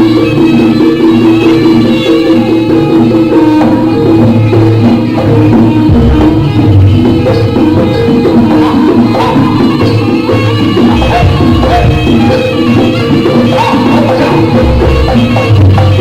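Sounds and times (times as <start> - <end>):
drums and pitched percussion ensemble: 0.0 - 16.0
deep low beat: 4.2 - 13.0.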